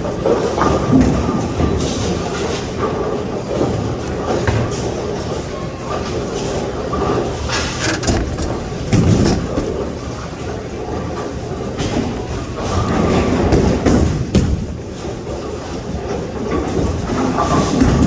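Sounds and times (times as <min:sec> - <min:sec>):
bowling balls rolling: 0:00.1 - 0:14.2
bowling pins clattering: 0:00.8 - 0:14.3.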